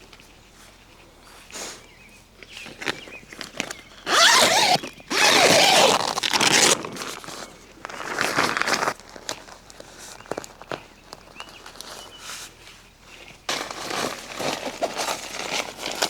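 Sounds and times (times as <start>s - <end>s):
zipper being pulled: 4.1s - 7.0s.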